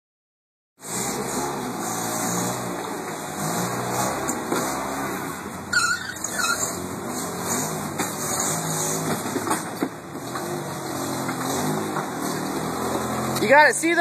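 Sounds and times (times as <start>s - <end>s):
vehicle engine at low revs: 0.8s - 14.0s
short squeaks: 5.7s - 6.8s.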